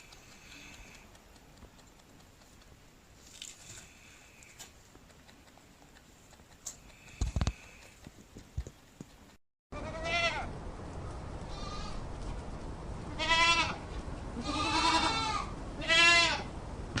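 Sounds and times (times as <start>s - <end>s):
goat bleating: 9.8s - 10.5s, 11.5s - 12.0s, 13.1s - 13.8s, 14.4s - 16.5s.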